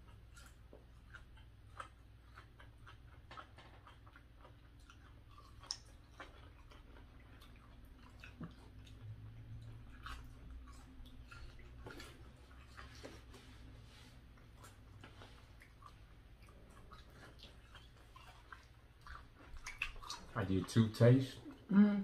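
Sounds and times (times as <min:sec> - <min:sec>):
quiet chewing: 0:00.0 - 0:21.7
wet mouth clicks and smacks: 0:16.4 - 0:20.4.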